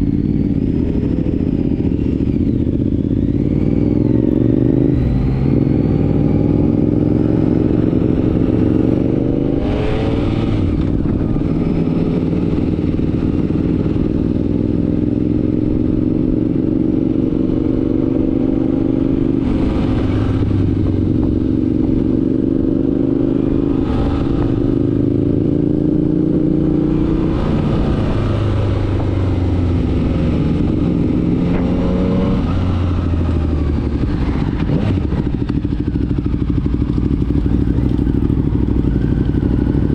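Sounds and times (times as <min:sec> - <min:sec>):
motorcycle engine shifting gears: 0:00.0 - 0:39.9.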